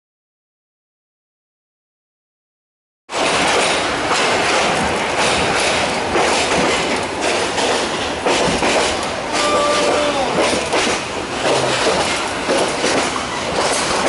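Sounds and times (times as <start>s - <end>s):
train rumbling and rattling: 3.1s - 14.0s
wheels clacking over rail joints: 3.1s - 14.0s.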